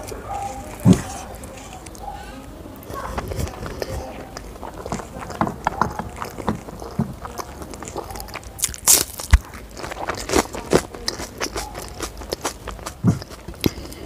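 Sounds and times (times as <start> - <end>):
chewing with crunches: 0.0 - 14.0.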